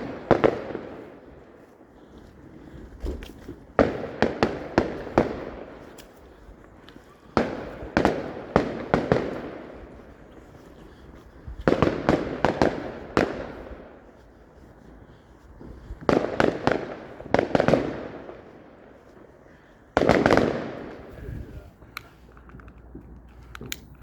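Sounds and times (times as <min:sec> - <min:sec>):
fireworks bangs with echoes: 0:00.0 - 0:01.7, 0:02.8 - 0:06.2, 0:07.0 - 0:14.0, 0:15.6 - 0:19.3, 0:20.0 - 0:21.6.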